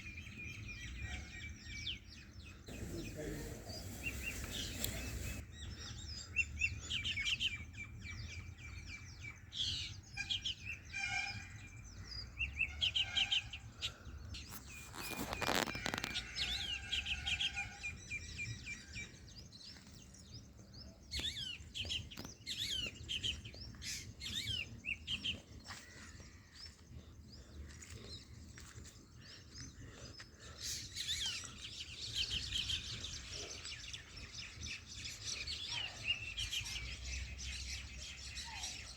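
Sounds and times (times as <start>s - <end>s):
small birds chirping: 0.0s - 38.9s
brief scraping noise: 14.4s - 16.4s.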